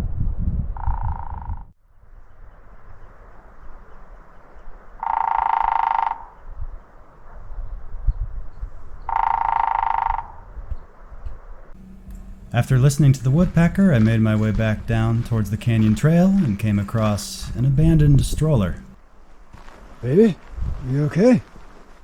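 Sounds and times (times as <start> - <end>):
woodpecker drumming: 5.0 - 6.3, 9.1 - 10.4, 11.8 - 19.0.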